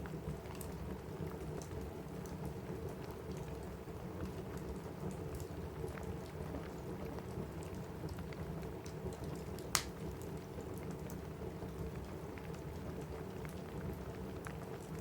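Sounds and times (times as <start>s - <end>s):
rain on a roof: 0.0s - 15.0s
wood fire crackling: 8.8s - 10.4s.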